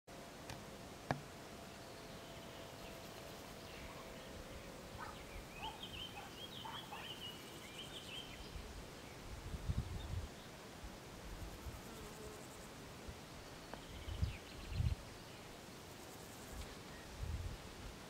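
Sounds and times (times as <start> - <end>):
distant birds chirping: 0.5 - 8.6.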